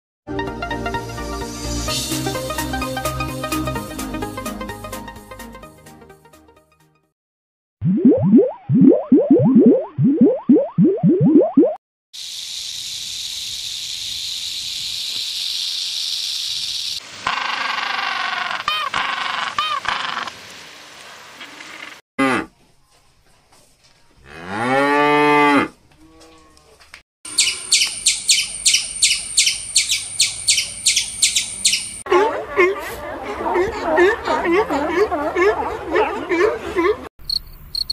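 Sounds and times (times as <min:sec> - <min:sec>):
rattlesnake rattle buzzing: 0:12.2 - 0:17.0
buffalo deep moo: 0:24.2 - 0:26.8
squirrel high-pitched chatter: 0:27.3 - 0:32.0.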